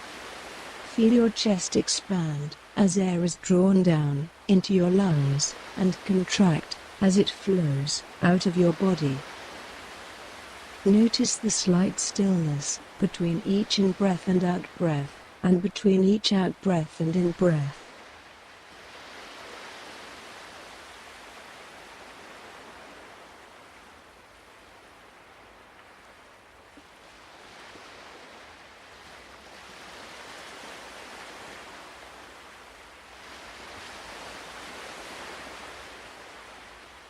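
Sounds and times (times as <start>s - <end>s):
ocean waves: 0.0s - 37.0s.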